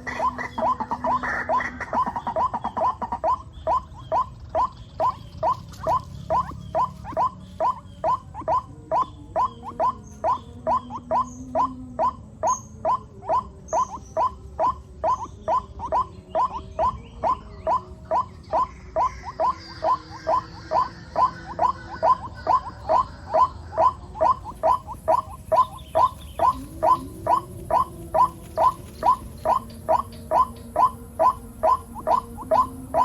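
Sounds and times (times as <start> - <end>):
waterhen calling rising notes: 0.0 - 33.0.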